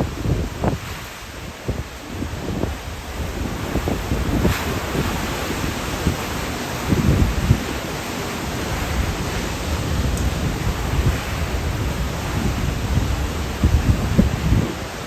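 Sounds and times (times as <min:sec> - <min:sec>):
strong wind rushing: 0:00.0 - 0:15.0
wind gusts buffeting microphone: 0:00.0 - 0:15.0.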